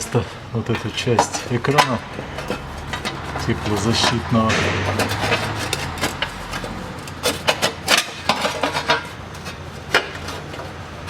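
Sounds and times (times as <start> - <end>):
sheet metal knocks: 1.2 - 8.5.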